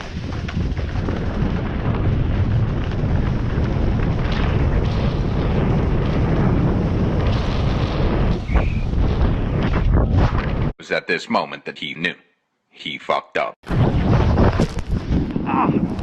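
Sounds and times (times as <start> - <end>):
wind buffeting microphone: 0.0 - 10.8, 13.7 - 16.0.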